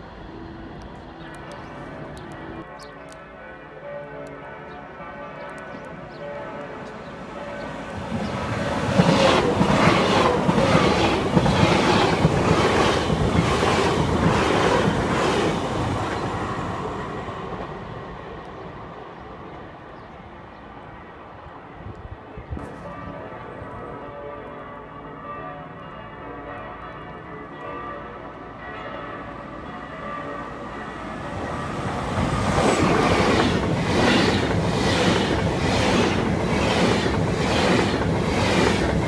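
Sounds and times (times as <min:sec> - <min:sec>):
train wheels rushing on rails: 0:07.7 - 0:18.6, 0:31.0 - 0:39.0.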